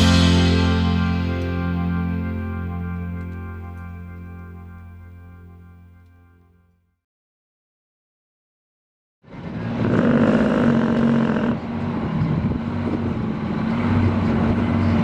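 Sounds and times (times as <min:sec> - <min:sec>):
large truck engine running: 0:00.0 - 0:04.8, 0:09.4 - 0:15.0.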